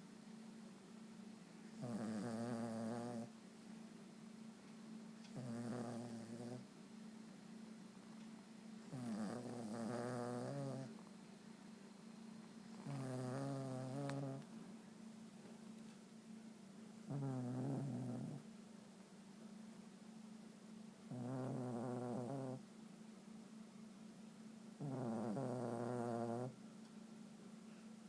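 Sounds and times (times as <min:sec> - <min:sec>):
small dog snoring: 0:01.7 - 0:03.4, 0:05.2 - 0:06.7, 0:08.8 - 0:11.2, 0:12.6 - 0:14.5, 0:17.0 - 0:18.5, 0:21.0 - 0:22.7, 0:24.8 - 0:26.6.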